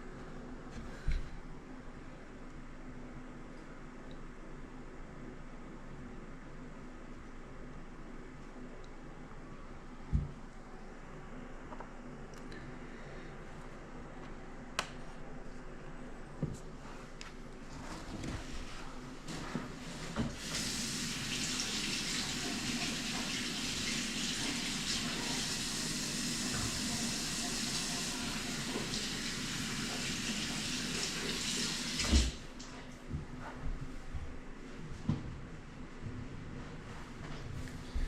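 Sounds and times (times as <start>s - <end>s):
faucet water running into sink: 20.2s - 32.4s.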